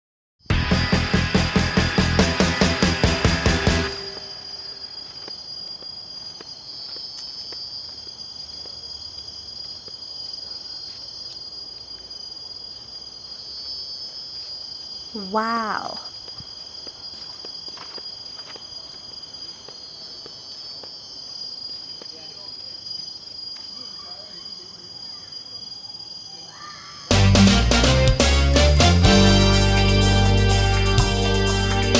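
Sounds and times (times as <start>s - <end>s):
loud music: 0.5s - 4.2s, 27.1s - 31.9s
insects trilling: 1.9s - 27.2s.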